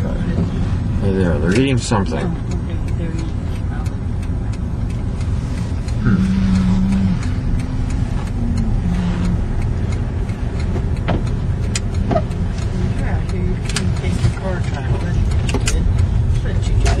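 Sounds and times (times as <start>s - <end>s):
car engine from inside cabin: 0.0s - 17.0s
road rumble: 0.0s - 17.0s
sharp clicks: 2.4s - 17.0s.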